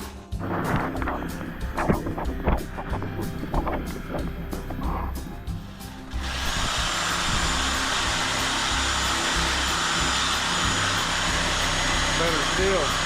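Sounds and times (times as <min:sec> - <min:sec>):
background music with steady beat: 0:00.0 - 0:13.0
loud hiss: 0:03.3 - 0:13.0
power tool high whine: 0:05.6 - 0:13.0.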